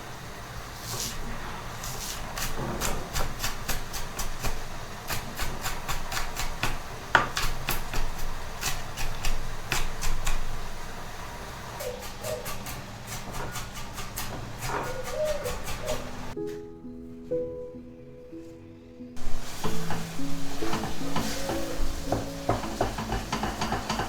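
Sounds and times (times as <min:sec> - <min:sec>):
knife chopping on cutting board: 0:02.1 - 0:10.6, 0:11.8 - 0:16.3, 0:20.7 - 0:24.0.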